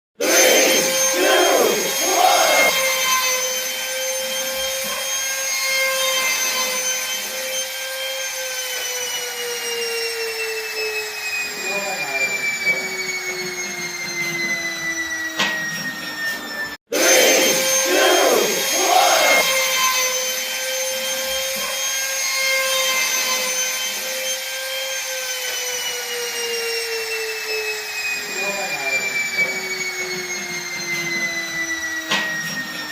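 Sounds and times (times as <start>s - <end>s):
power tool motor whining: 0.2s - 32.9s
hiss of cutting: 17.0s - 19.6s.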